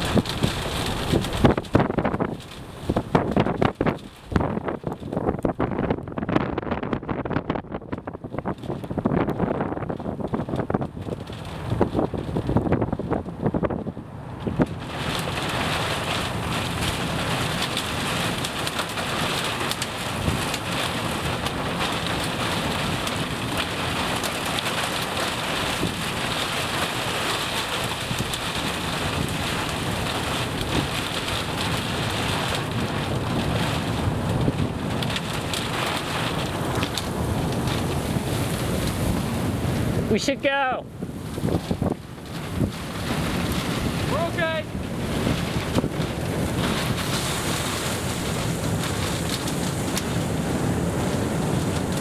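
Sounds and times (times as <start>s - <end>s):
heavy rain: 0.0s - 6.4s, 8.0s - 52.0s
wind: 0.0s - 52.0s.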